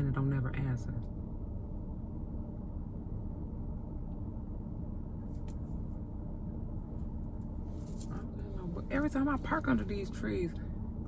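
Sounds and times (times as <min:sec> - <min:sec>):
vehicle idling: 0:02.8 - 0:11.0.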